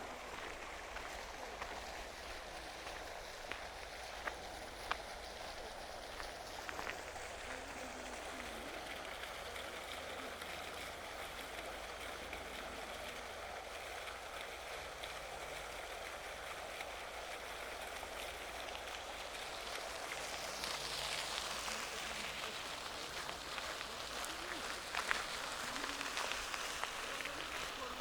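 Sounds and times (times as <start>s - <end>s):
soft outdoor hiss: 0.0s - 28.0s.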